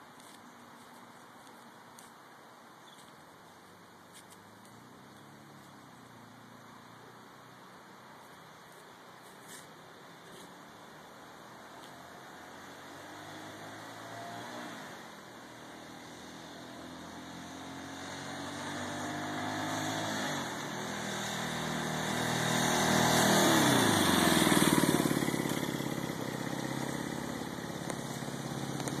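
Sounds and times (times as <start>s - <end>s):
motorcycle engine revving: 11.7s - 29.0s.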